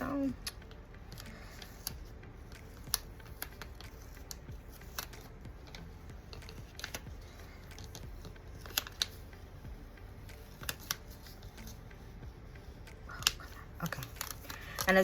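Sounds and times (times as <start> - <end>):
hands handling paper: 0.4 - 9.4, 12.7 - 15.0.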